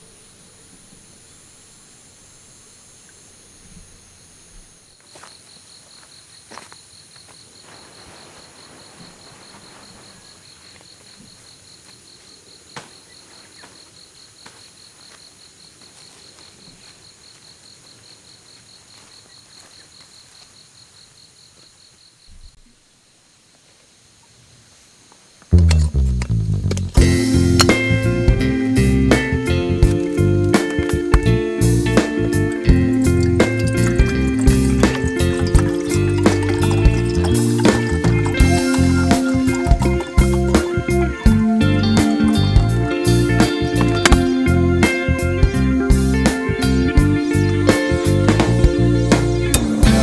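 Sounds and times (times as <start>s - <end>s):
insect pulsing trill: 25.5s - 50.0s
high-pitched insect drone: 27.0s - 50.0s.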